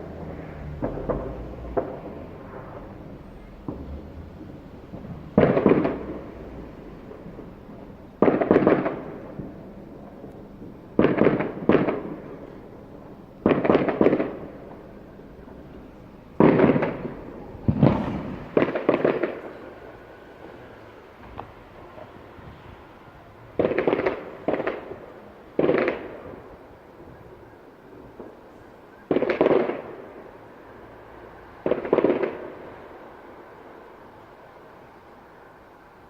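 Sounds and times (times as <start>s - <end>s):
fireworks bangs: 0.0s - 34.5s.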